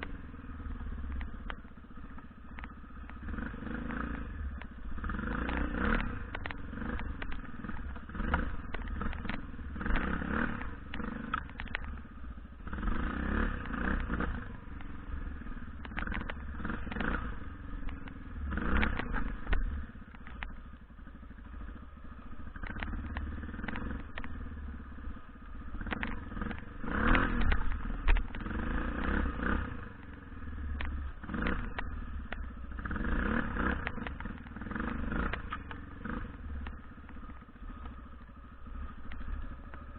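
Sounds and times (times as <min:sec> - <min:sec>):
dirt bike engine revving: 0:03.2 - 0:12.0, 0:12.6 - 0:17.6, 0:18.4 - 0:19.8, 0:25.6 - 0:39.9.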